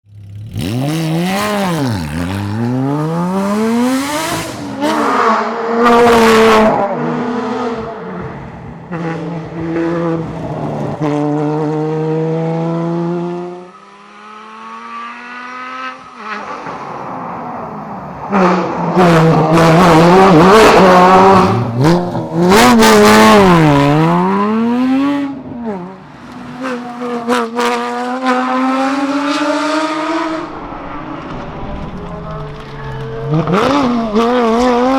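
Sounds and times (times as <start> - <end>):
sports car engine revving: 0.4 - 8.3, 18.4 - 34.9.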